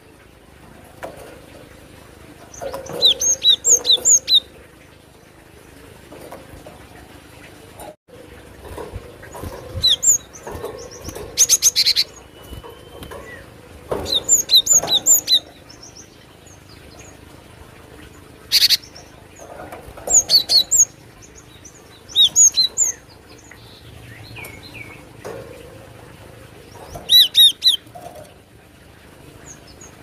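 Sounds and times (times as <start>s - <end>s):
bird buzzy rattles: 0.6s - 23.0s
bird chirping: 2.4s - 4.5s, 8.7s - 17.2s, 18.4s - 25.4s, 26.6s - 27.9s.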